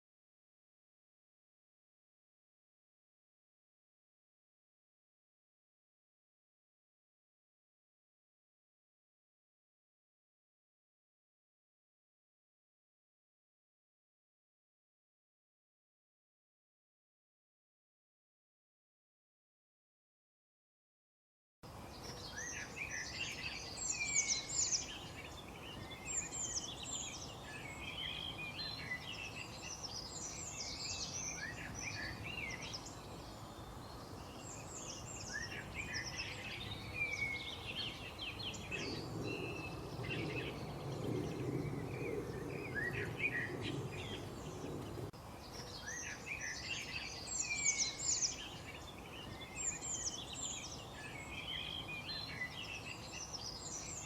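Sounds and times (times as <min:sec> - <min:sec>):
background hiss: 0:21.7 - 0:54.0
songbirds chirping and trilling: 0:21.7 - 0:54.0
low rumble: 0:38.7 - 0:45.2.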